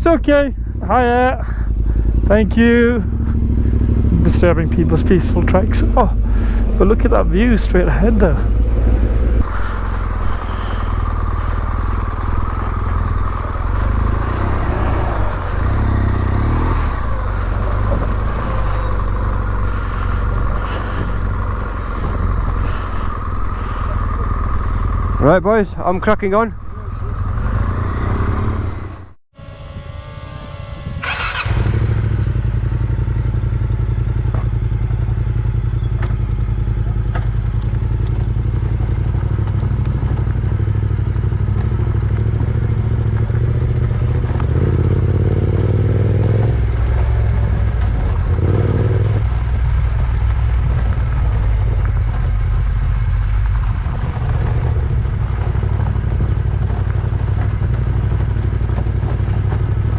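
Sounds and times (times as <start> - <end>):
motorcycle engine drone: 0.0 - 59.9.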